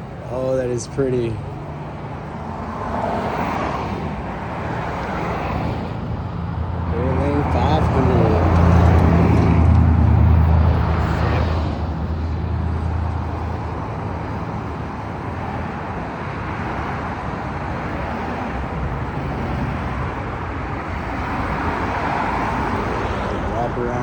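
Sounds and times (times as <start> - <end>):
outdoor background noise: 0.0 - 24.0
car engine running: 6.5 - 19.5.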